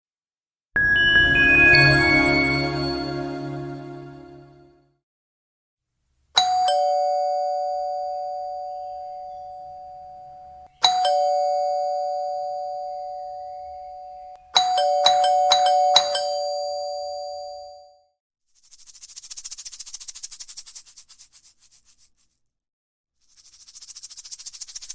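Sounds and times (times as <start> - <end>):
two-tone doorbell chime: 0.8 - 3.9, 10.8 - 18.0.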